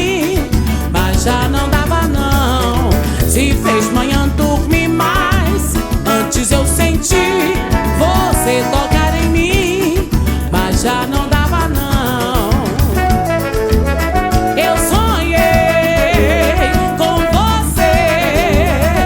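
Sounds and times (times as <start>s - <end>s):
samba band playing: 0.0s - 19.0s.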